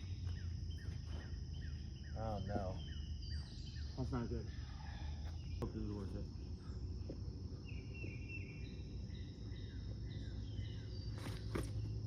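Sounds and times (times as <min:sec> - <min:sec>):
birds chirping: 0:00.0 - 0:12.0
insect buzz: 0:00.0 - 0:12.0.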